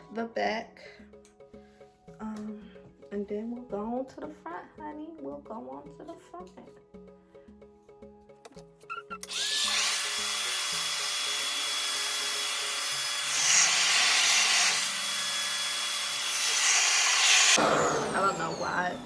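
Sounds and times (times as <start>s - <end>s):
hair dryer motor whining: 9.2s - 19.0s.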